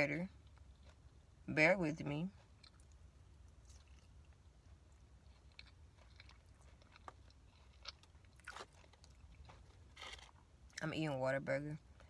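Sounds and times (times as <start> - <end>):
low steady hum: 0.0 - 12.0
soft mouth clicks and smacks chewing: 2.4 - 9.8.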